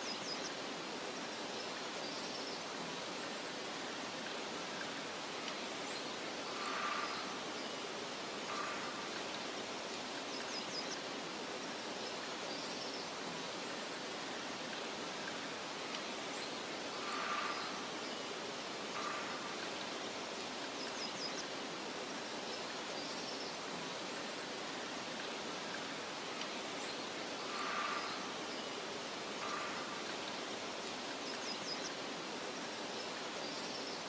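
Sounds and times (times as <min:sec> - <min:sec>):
soft wind hiss: 0:00.0 - 0:34.0.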